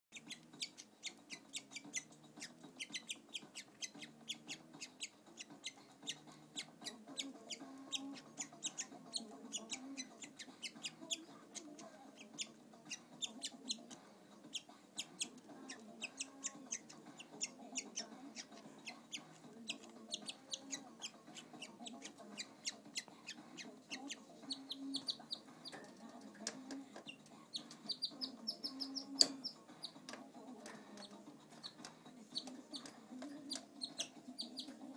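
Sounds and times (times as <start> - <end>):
canary chirping: 0.0 - 34.9.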